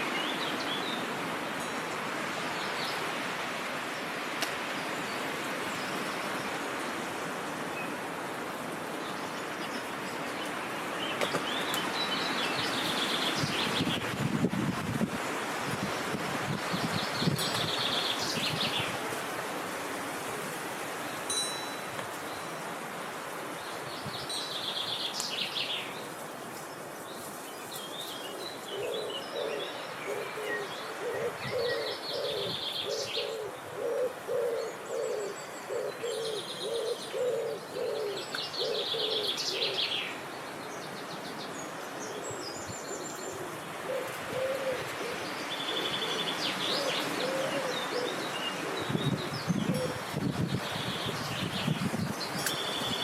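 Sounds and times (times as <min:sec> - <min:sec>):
songbirds trilling: 0:21.0 - 0:53.0
bird hooting or cooing: 0:28.2 - 0:40.1, 0:42.1 - 0:50.1.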